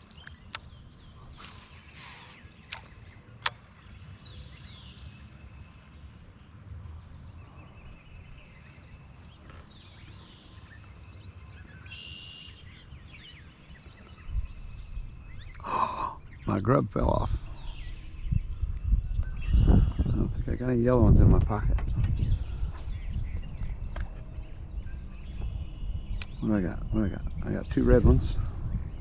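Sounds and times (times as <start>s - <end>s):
birds chirping: 0.0s - 29.0s
wind on microphone: 13.9s - 29.0s.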